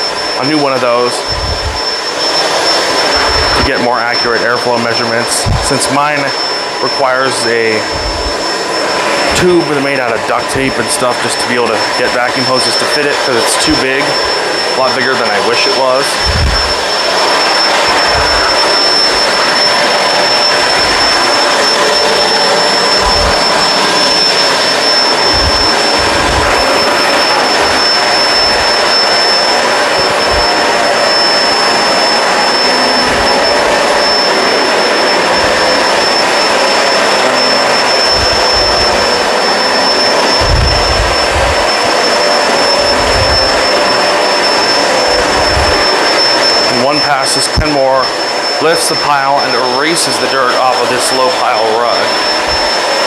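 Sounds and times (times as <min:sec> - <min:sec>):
upright vacuum cleaner running: 0:00.0 - 0:53.0
short low thump: 0:40.4 - 0:41.5.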